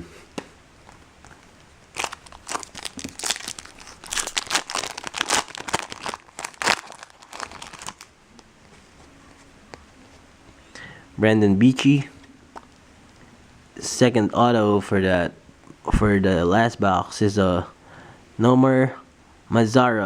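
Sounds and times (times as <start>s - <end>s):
foil wrapper crinkling and tearing: 1.9s - 8.1s.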